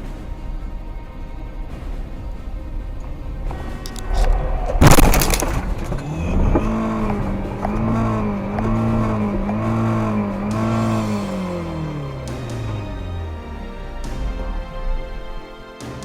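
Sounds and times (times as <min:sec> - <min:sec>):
rising and falling pitched sound: 0:03.9 - 0:15.6
vehicle collision smash: 0:04.7 - 0:07.2.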